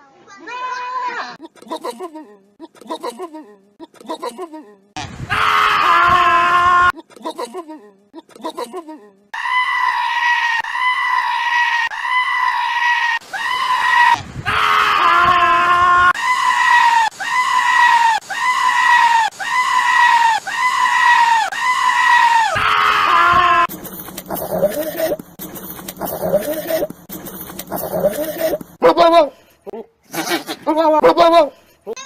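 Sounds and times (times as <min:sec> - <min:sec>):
goat screaming: 0:09.4 - 0:23.7, 0:30.1 - 0:32.0.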